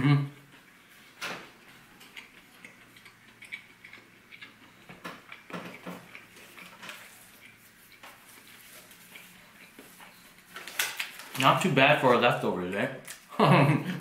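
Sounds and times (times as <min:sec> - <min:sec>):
chewing breadstick: 0:01.7 - 0:10.5.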